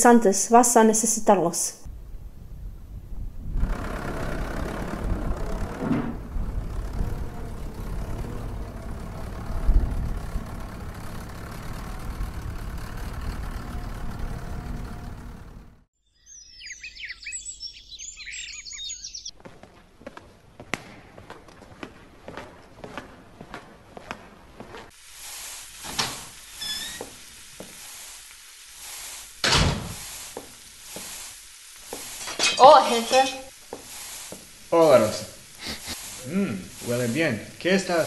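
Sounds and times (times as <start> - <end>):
low outdoor rumble: 1.9 - 15.9
birds chirping: 10.2 - 19.4.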